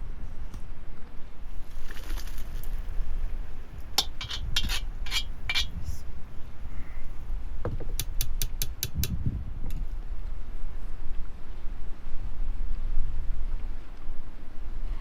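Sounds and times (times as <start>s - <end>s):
utensils and dishes clinking: 4.0s - 5.8s.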